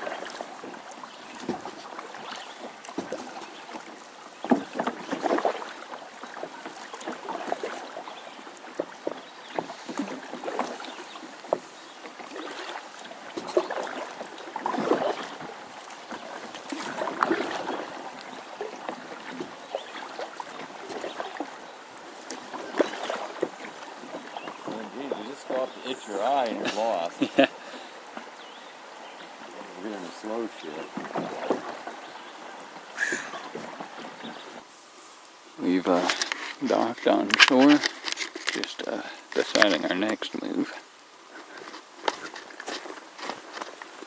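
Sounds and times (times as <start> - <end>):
paddle splashing in water: 0.0 - 44.0.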